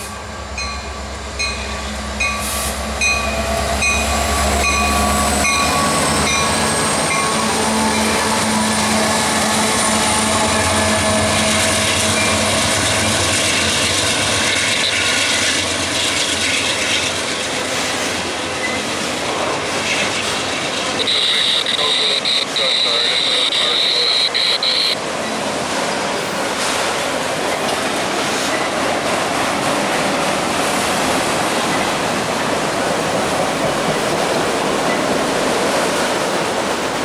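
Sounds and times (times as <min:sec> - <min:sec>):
locomotive bell ringing: 0:00.0 - 0:09.0, 0:10.0 - 0:12.7, 0:20.9 - 0:25.4
diesel locomotive rumble: 0:00.0 - 0:37.0
wheel-on-rail noise: 0:03.1 - 0:37.0
high wheel squeals: 0:21.0 - 0:25.4.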